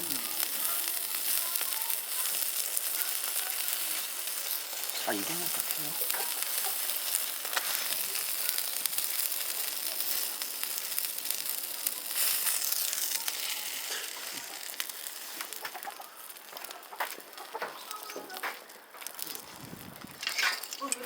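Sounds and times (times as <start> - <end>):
chickens clucking: 0.0 - 8.9, 11.7 - 18.8
meat sizzling on a grill: 0.0 - 21.0.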